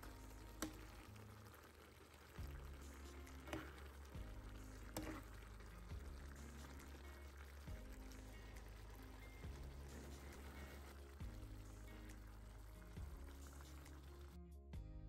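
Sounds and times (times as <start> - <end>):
quiet background music: 0.0 - 15.0
metal spoon stirring in frying pan: 2.4 - 11.1
spoon scraping and clinking on pan: 4.9 - 5.4.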